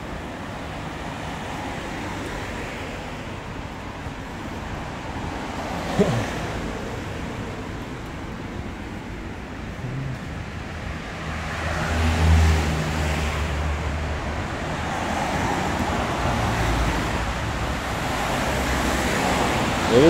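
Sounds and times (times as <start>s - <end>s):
road traffic noise: 0.0s - 20.0s
vehicle engine rumbling: 6.0s - 11.3s.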